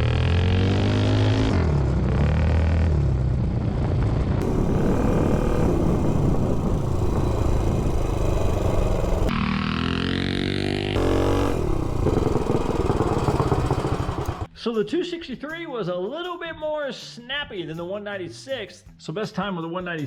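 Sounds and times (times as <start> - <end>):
mini bike engine revving: 4.4 - 14.5.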